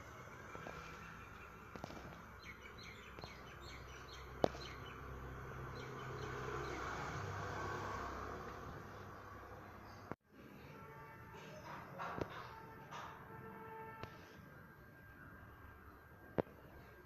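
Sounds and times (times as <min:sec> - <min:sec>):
small birds chirping: 0:00.0 - 0:07.2
low outdoor background: 0:00.0 - 0:17.0.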